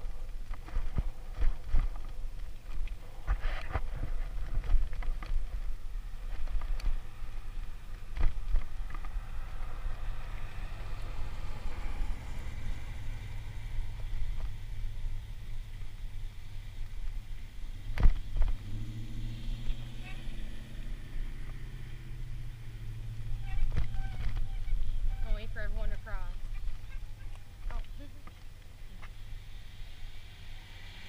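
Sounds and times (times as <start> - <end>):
bicycle rattling over bumps: 0.0 - 12.4, 23.2 - 28.9.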